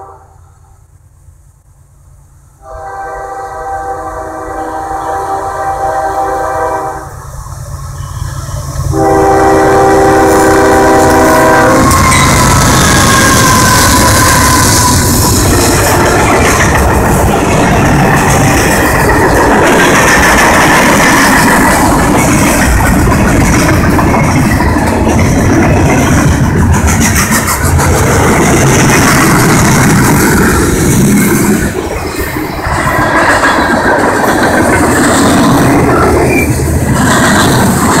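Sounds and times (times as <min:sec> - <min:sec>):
locomotive air horn blasts: 0:00.0 - 0:00.6, 0:02.6 - 0:07.2, 0:08.9 - 0:16.3
freight train rumbling past: 0:00.0 - 0:38.0.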